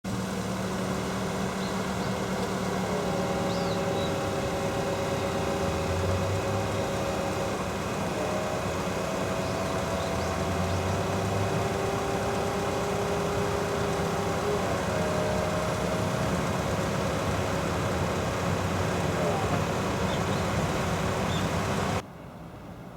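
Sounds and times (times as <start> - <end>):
car engine running: 0.0 - 22.0
road noise: 0.0 - 22.9.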